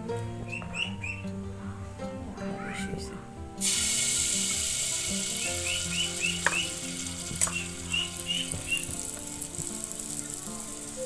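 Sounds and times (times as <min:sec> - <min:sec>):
batter sizzling in hot oil: 0:03.6 - 0:11.0.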